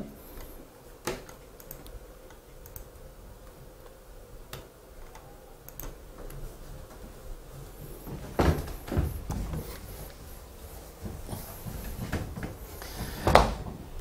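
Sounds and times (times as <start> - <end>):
faint steady hum: 0.0 - 14.0
keyboard or mouse clicks: 1.1 - 3.0, 3.8 - 6.4.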